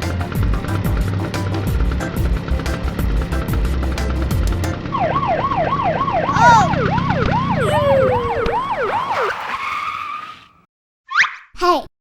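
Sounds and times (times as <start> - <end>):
fast yelping siren: 4.9 - 10.5.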